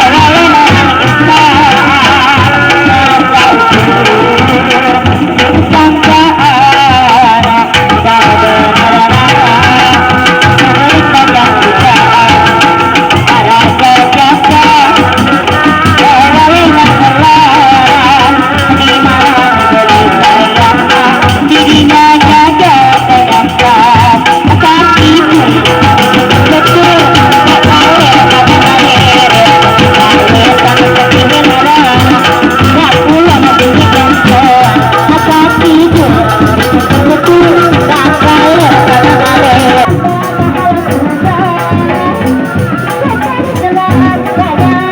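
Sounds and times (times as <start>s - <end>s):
drums and rattles beating: 0.0s - 44.9s
wavering melody: 25.0s - 44.9s.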